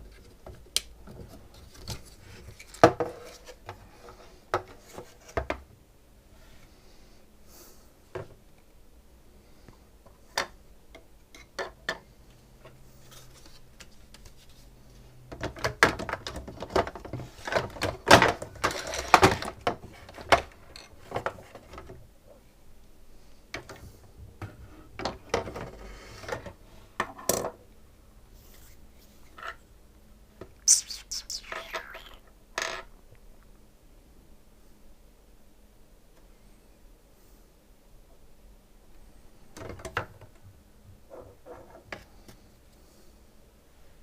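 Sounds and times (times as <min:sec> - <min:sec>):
plastic parts clicking and clattering: 0:15.4 - 0:22.0.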